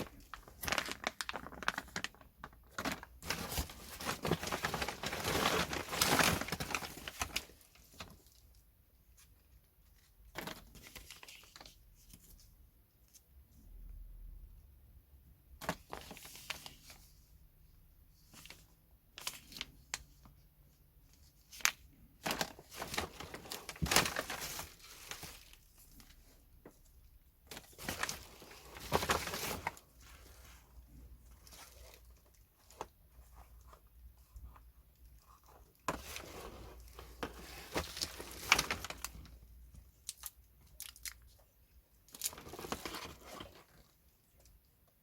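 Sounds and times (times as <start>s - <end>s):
packaging crinkling: 0.0s - 8.2s, 21.5s - 26.3s, 27.4s - 30.6s, 35.2s - 39.4s.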